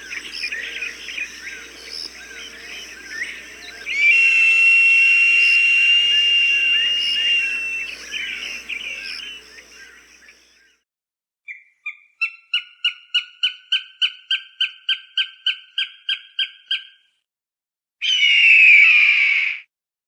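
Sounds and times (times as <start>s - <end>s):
falcon cackling calls: 0.0s - 10.1s
falcon harsh scream: 3.6s - 9.4s, 18.0s - 19.6s.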